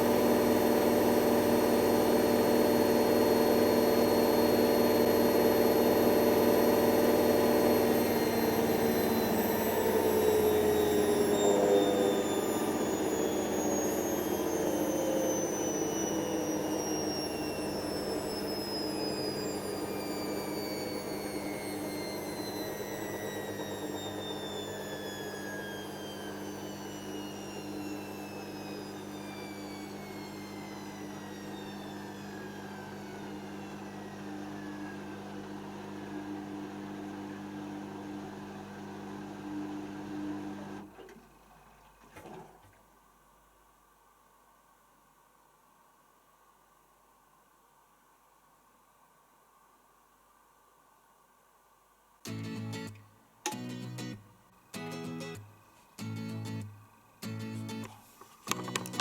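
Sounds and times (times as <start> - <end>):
washing machine whine slowing: 0.0 - 43.1.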